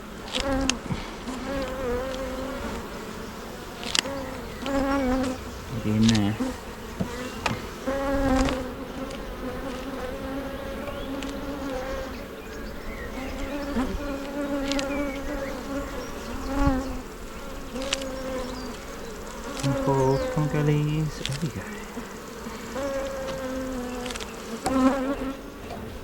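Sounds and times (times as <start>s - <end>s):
honey bees buzzing: 0.0s - 26.0s.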